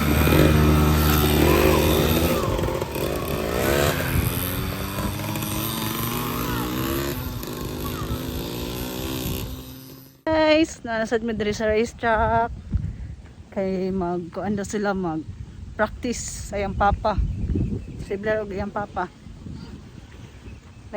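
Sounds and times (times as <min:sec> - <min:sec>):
dirt bike engine revving: 0:00.0 - 0:10.3.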